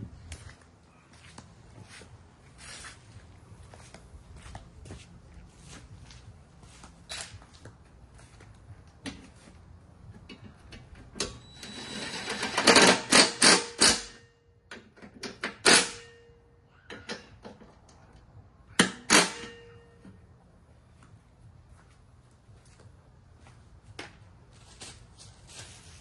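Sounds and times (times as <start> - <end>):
ringing metal strikes: 18.8 - 20.1.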